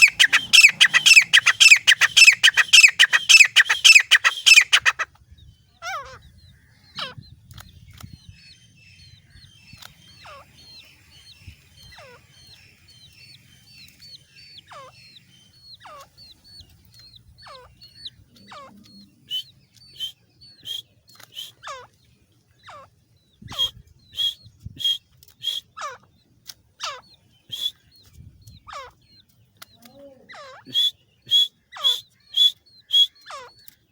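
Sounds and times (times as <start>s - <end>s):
falling whistled bird notes: 0.0s - 5.0s, 27.5s - 27.8s, 30.7s - 33.1s
shrill hooked bird calls: 0.0s - 5.0s, 22.6s - 26.0s, 26.8s - 27.9s, 30.3s - 33.8s.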